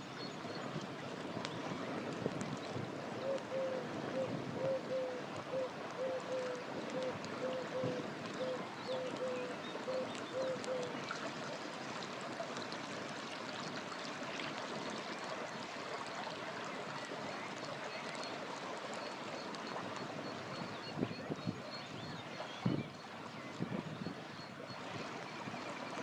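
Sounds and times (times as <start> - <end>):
river water flowing: 5.1 - 20.6.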